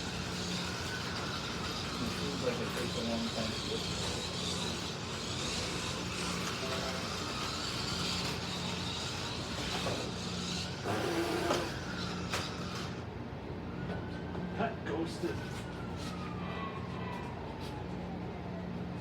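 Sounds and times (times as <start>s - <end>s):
slot car motors whirring: 0.0s - 13.1s.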